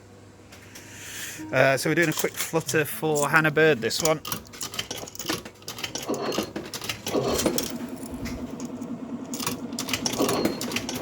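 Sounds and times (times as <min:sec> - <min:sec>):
low electronic tone: 0:01.3 - 0:01.9
metallic clicking and clinking: 0:02.0 - 0:03.4, 0:04.0 - 0:07.9.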